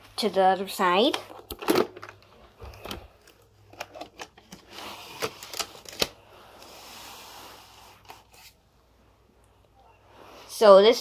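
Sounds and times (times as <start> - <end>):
soft rubbing sound: 6.6 - 8.7.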